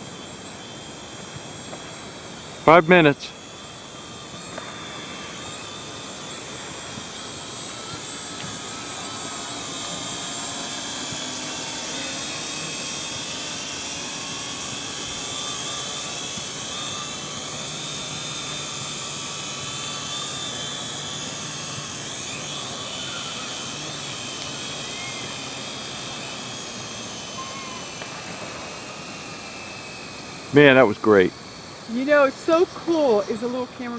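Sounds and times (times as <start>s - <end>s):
drone propellers whining: 0.0s - 33.9s.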